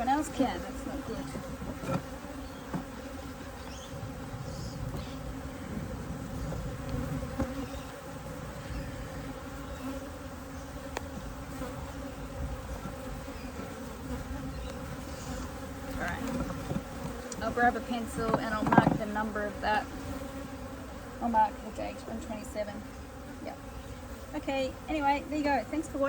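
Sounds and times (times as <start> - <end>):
honeybees buzzing: 0.0 - 26.0
faint clicks: 17.3 - 17.5.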